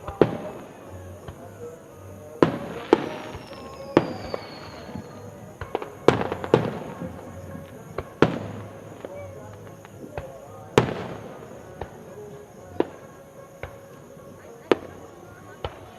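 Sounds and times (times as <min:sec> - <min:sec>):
firework booms: 0:00.0 - 0:01.5, 0:02.4 - 0:13.9
firework pops and crackles: 0:00.0 - 0:01.5, 0:02.4 - 0:15.9
faint falling whistle: 0:02.4 - 0:06.2.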